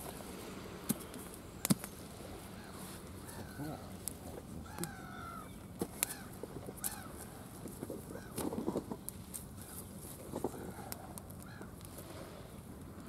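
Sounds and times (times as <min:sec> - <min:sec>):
bird calling: 0:01.6 - 0:04.0, 0:04.6 - 0:07.4.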